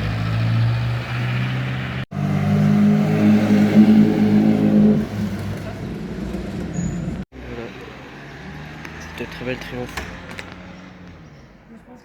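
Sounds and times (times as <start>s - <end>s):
loud engine: 0.0s - 11.3s.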